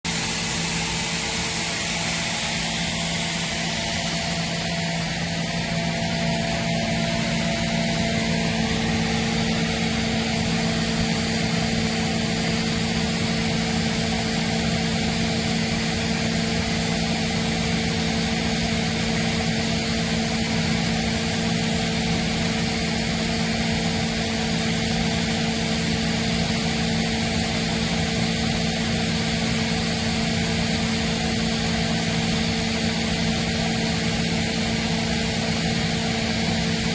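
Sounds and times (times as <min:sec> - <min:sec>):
air compressor running: 0:00.0 - 0:36.9.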